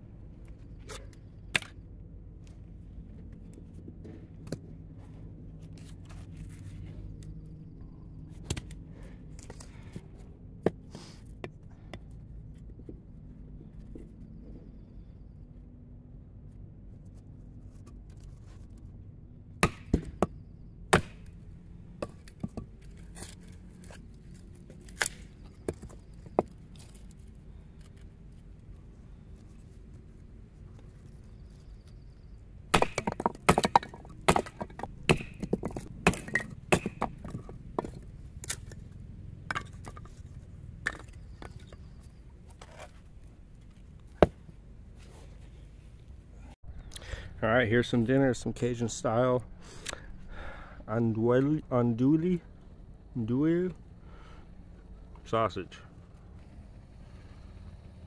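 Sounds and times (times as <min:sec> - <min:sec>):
knife chopping wood: 0:19.6 - 0:20.3, 0:20.9 - 0:21.3, 0:32.7 - 0:38.6.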